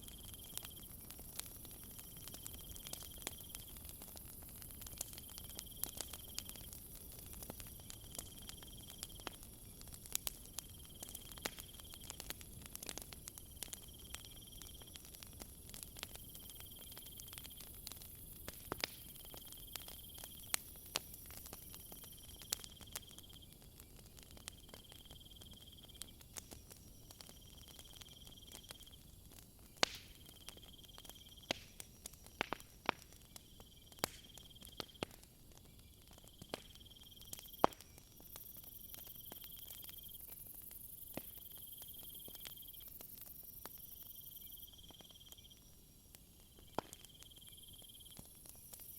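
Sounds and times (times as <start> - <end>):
wood fire crackling: 0.0 - 48.9
insect chirping call: 24.8 - 29.0, 30.2 - 32.4, 36.3 - 48.9.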